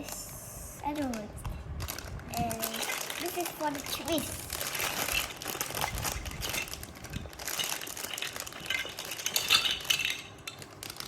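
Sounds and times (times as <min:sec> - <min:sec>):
toy bricks clicking and clattering: 0:02.4 - 0:11.0.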